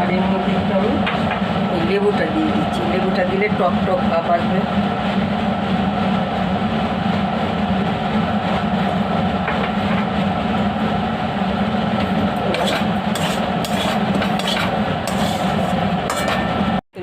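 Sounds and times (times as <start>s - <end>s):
loud rumbling hum: 0.0s - 17.0s
metal utensil clinking on pan: 16.1s - 16.5s.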